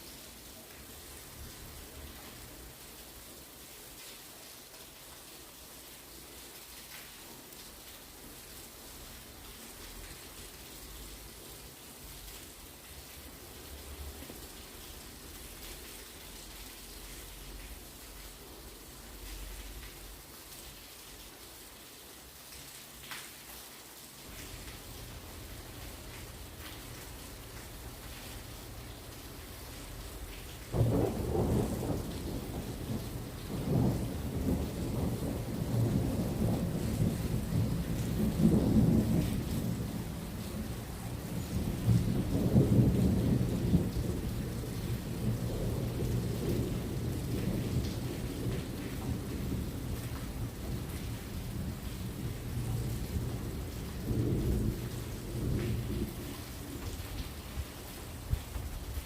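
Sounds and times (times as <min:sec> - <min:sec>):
heavy rain falling: 0:00.0 - 0:59.0
distant thunder rumbling: 0:30.7 - 0:57.0.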